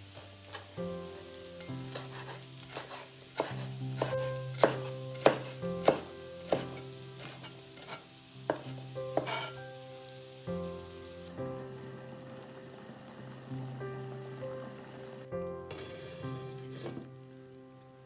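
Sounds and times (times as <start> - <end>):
soft background music: 0.0 - 18.0
knife chopping on cutting board: 1.9 - 9.6.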